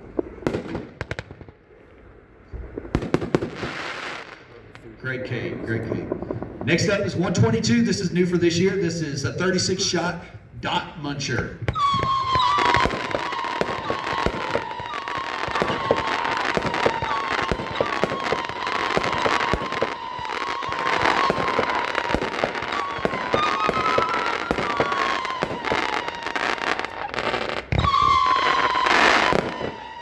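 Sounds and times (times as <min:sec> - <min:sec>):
firework launch thumps and pops: 0:11.6 - 0:13.0.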